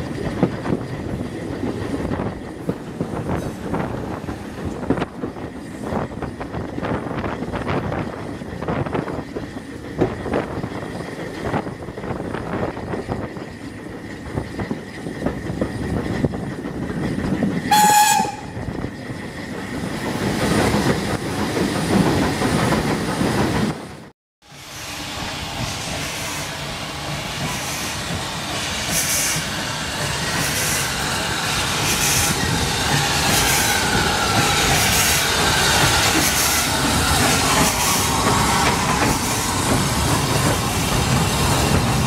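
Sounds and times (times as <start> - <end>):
train wheels clicking on track: 0.0 - 42.0
steam locomotive whistle: 17.7 - 18.6.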